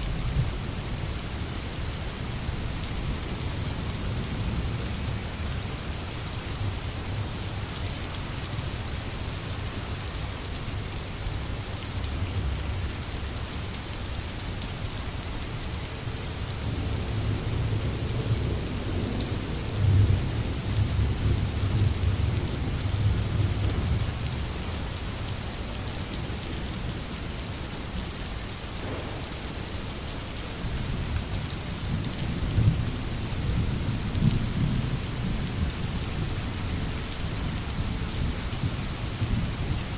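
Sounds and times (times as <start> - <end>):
steady rain: 0.0 - 39.9
distant thunder rumbling: 28.8 - 30.0.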